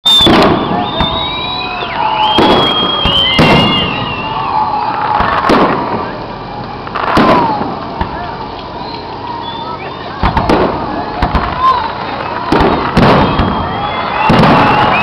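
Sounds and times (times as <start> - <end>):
high whistling tones: 0.0 - 5.0, 8.7 - 10.4, 11.6 - 15.0
firework shells bursting: 0.1 - 9.6, 10.2 - 15.0.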